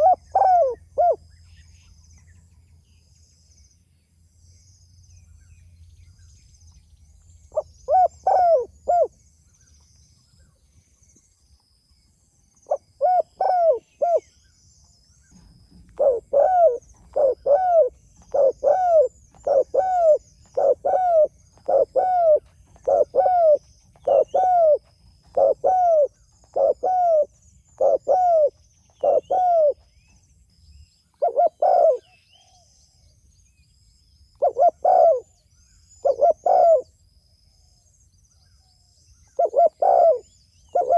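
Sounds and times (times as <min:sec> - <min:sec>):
dove cooing: 0:00.0 - 0:01.2, 0:07.6 - 0:09.1, 0:12.7 - 0:14.3, 0:15.3 - 0:29.8, 0:31.2 - 0:32.6, 0:34.4 - 0:35.4, 0:36.0 - 0:36.9, 0:39.4 - 0:40.9
small birds chirping: 0:00.0 - 0:40.9.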